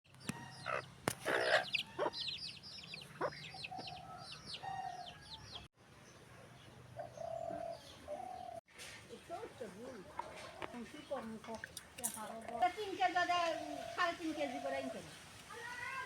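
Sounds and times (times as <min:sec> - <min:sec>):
chickens calling: 0:00.2 - 0:05.7, 0:07.0 - 0:08.6, 0:09.9 - 0:11.6, 0:12.4 - 0:15.8.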